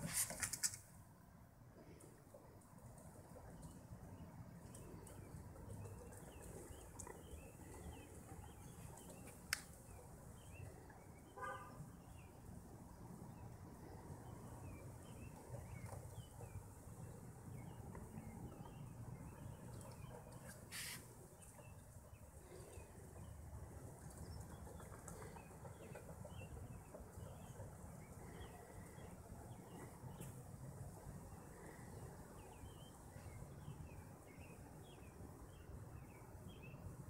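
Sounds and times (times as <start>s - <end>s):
brief rustle: 0.0s - 0.9s, 20.4s - 21.1s
faint birds chirping: 0.0s - 37.0s.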